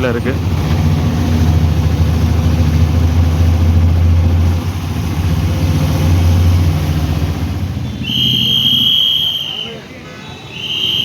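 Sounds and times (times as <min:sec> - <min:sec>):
auto-rickshaw engine running: 0:00.0 - 0:09.6
road noise: 0:00.0 - 0:11.0.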